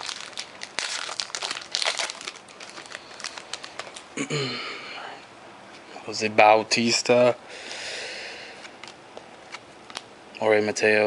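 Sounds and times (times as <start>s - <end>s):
trading cards crinkling: 0.0s - 4.1s.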